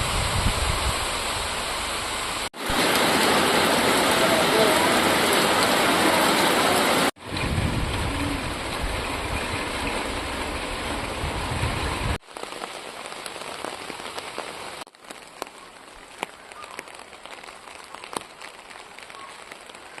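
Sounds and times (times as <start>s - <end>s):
steady rain falling: 0.0s - 20.0s
raindrops ticking: 12.2s - 20.0s.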